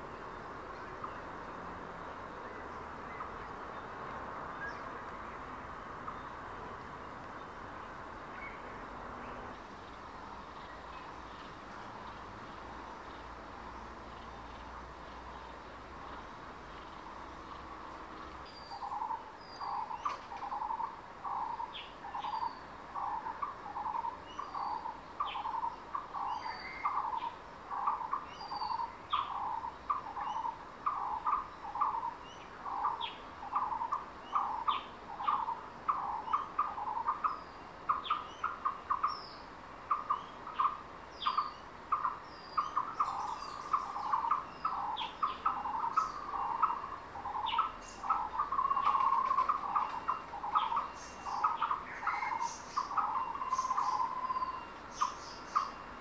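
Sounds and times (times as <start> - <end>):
birds chirping sharply: 16.8 - 56.0.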